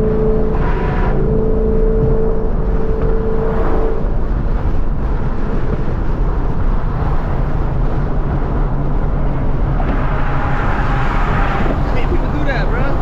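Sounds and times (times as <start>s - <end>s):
car engine low hum: 0.0s - 13.0s.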